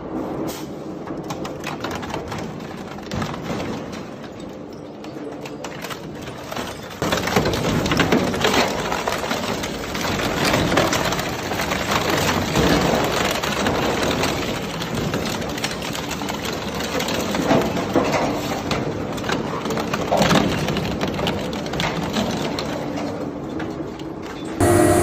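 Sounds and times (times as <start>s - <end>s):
crusher machine crunching material: 5.7s - 22.8s.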